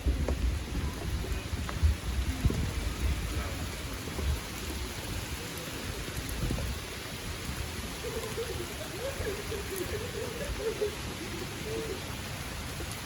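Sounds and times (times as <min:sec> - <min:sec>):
faint distant voices: 0:00.0 - 0:13.0
light rain on leaves: 0:00.0 - 0:13.0.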